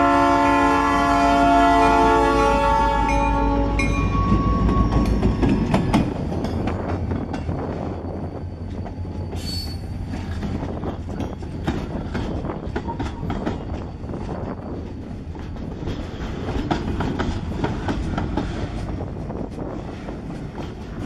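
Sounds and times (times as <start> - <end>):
steel wheels rumbling on rail: 0.0 - 21.0
wheels clanking over rail joints: 3.8 - 21.0
high squeal: 6.8 - 10.3.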